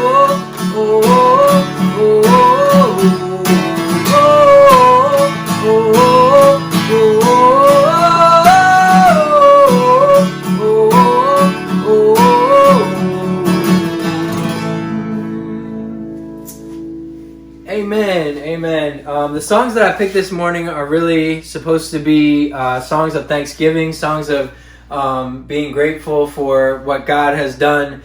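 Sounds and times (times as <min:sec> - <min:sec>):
person singing wordless melody: 0:00.0 - 0:16.8
acoustic guitar strumming: 0:00.0 - 0:20.0.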